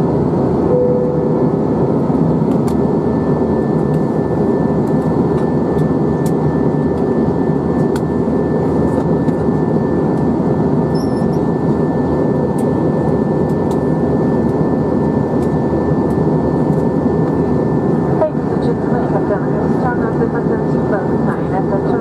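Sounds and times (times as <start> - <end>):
jet engine and airflow roar: 0.0 - 22.0
thin high whine: 0.7 - 1.8.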